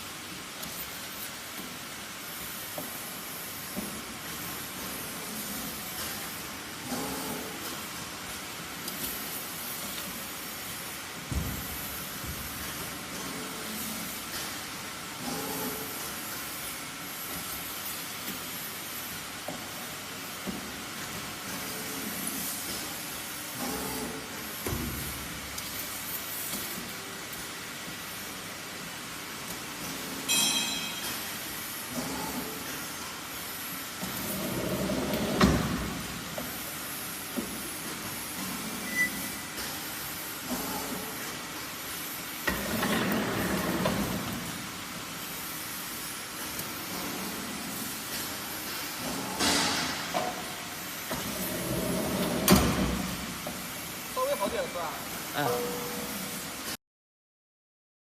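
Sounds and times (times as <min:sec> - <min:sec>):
machine hiss: 0:00.0 - 0:56.7
bending machine hissing: 0:31.0 - 0:56.6
faint machine tones: 0:38.8 - 0:39.5, 0:55.4 - 0:56.3.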